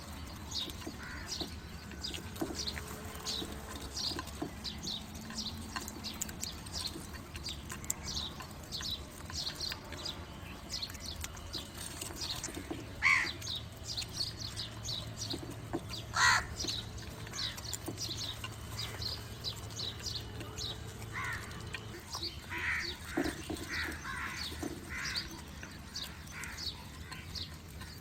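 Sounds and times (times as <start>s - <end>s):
small birds chirping: 0.0s - 28.0s
crow cawing: 13.0s - 13.3s, 16.1s - 16.5s, 21.1s - 21.4s, 22.5s - 23.0s.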